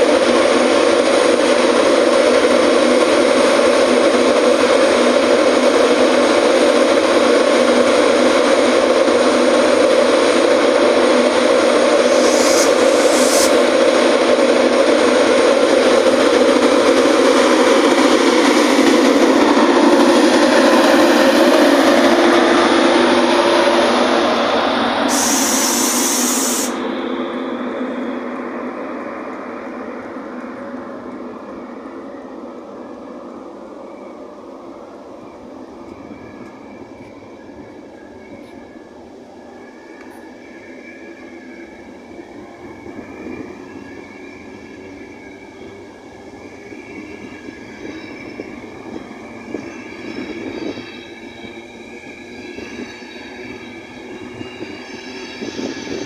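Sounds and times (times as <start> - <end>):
electric locomotive motor and fan: 0.0 - 56.0
brief high hiss: 12.0 - 13.6, 25.0 - 26.8
faint high squeal: 20.5 - 34.5, 35.2 - 56.0.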